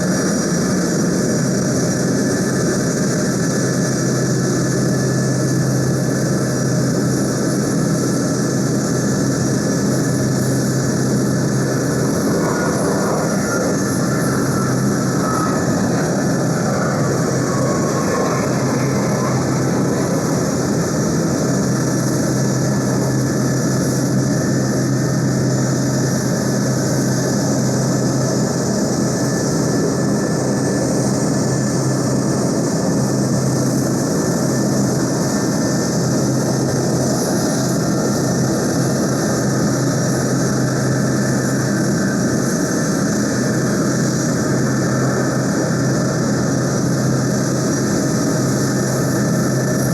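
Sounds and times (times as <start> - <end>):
jet engines running: 0.0 - 49.9
faint whine: 0.1 - 31.6.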